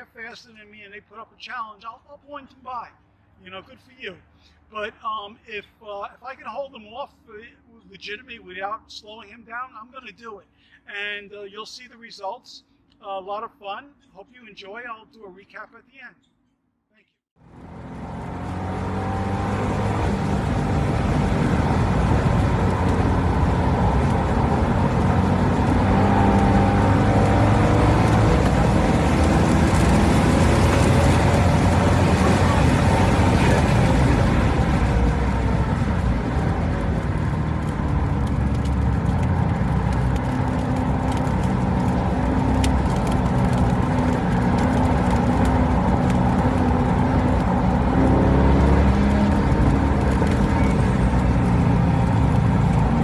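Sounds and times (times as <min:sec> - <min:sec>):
car engine on race track: 0:17.4 - 0:53.0
road and wind noise: 0:17.4 - 0:53.0.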